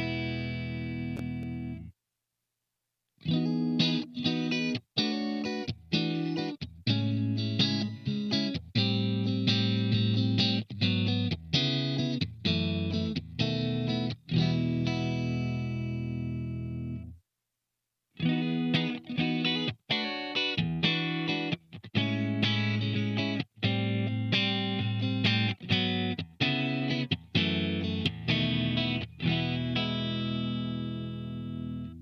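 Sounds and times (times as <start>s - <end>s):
distorted electric guitar chords: 0.0s - 1.9s, 18.2s - 32.0s.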